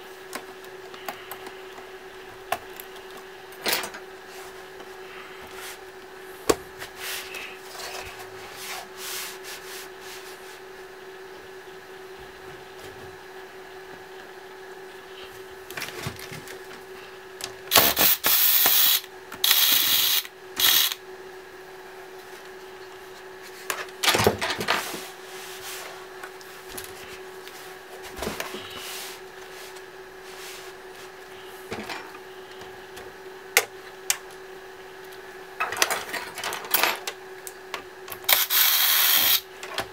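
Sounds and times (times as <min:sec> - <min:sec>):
faint steady hum: 0:00.0 - 0:39.9
electric screwdriver whirring: 0:17.7 - 0:21.0, 0:38.3 - 0:39.4.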